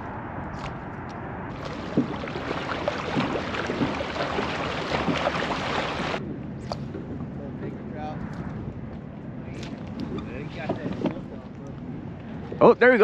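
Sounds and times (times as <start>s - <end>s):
splashes and knocks on hull: 1.5s - 6.2s
wind and water rushing: 1.5s - 7.3s.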